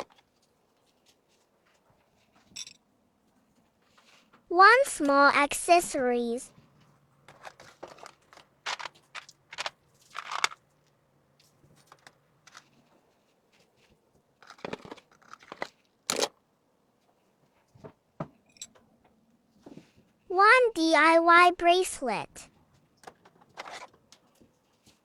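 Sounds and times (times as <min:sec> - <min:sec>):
packaging crinkling and rustling: 0:07.3 - 0:10.7, 0:11.8 - 0:12.9, 0:13.5 - 0:16.3.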